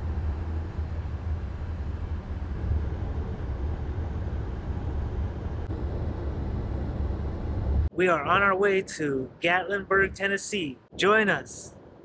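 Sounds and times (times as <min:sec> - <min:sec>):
road and engine rumble in car: 0:00.0 - 0:08.0.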